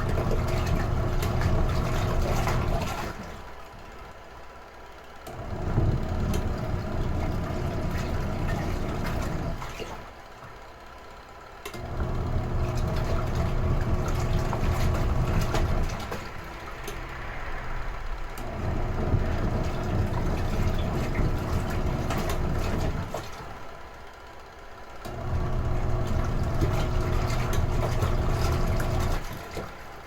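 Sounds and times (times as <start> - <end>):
water churning in tub: 0.0 - 3.8, 5.3 - 10.3, 11.8 - 23.9, 25.1 - 30.0
washing machine motor running: 0.0 - 30.0.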